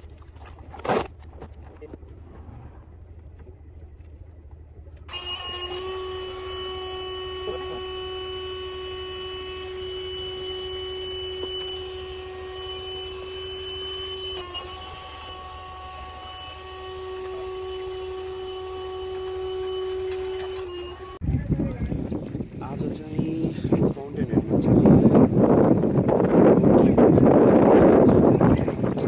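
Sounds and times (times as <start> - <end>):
small electric motor whine: 5.1 - 21.2.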